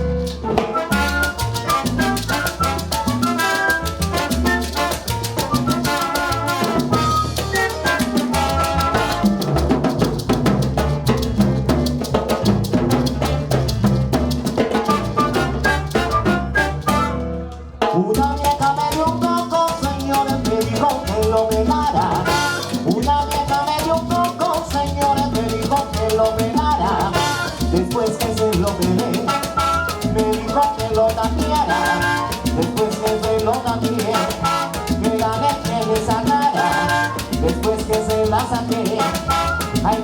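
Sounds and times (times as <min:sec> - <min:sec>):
bass: 0:00.0 - 0:40.0
congas: 0:00.0 - 0:40.0
piano: 0:00.0 - 0:40.0
trombones: 0:00.5 - 0:09.7, 0:14.9 - 0:17.5, 0:22.2 - 0:22.8, 0:27.1 - 0:27.6, 0:29.2 - 0:30.1, 0:31.7 - 0:32.6, 0:34.0 - 0:35.2, 0:36.5 - 0:37.4, 0:39.0 - 0:40.0.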